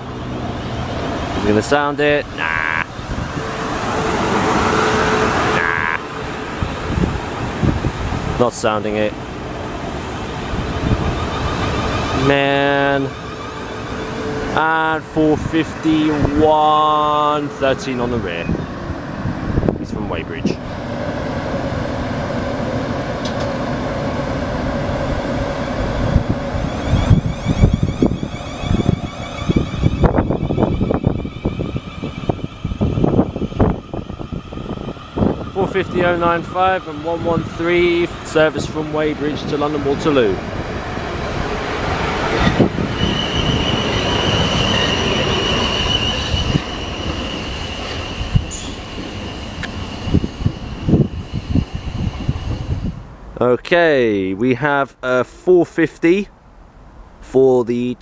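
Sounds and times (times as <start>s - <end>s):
electric train rumble with motor tone: 0.0s - 53.4s
wind buffeting microphone: 2.2s - 53.4s
high-pitched wheel squeal: 2.4s - 7.1s, 10.4s - 18.7s, 25.4s - 38.1s, 42.2s - 53.0s.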